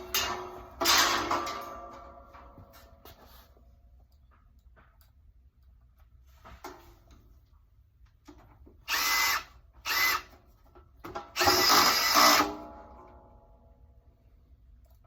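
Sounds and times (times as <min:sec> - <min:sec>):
power drill motor whining: 0:08.9 - 0:10.3, 0:11.4 - 0:12.5.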